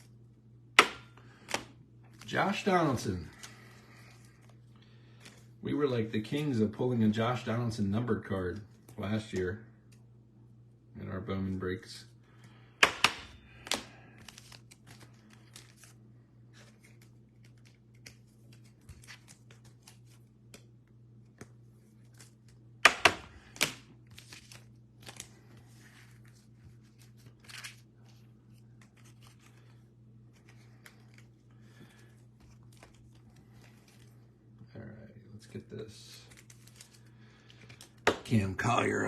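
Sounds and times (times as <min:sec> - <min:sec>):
plastic sleeves crinkling: 0:13.5 - 0:22.7, 0:23.4 - 0:34.6, 0:35.4 - 0:39.0.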